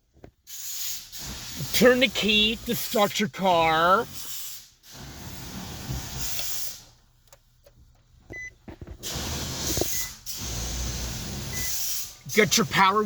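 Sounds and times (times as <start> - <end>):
car ignition clicks: 7.2 - 10.1.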